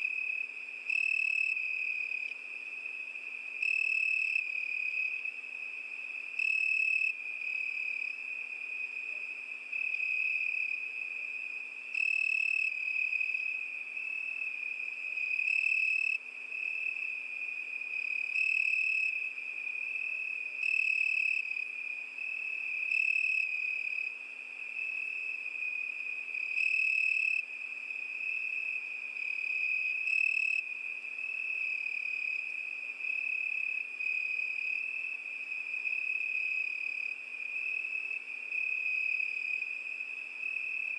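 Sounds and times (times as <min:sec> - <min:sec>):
cricket trilling: 0:00.0 - 0:40.9.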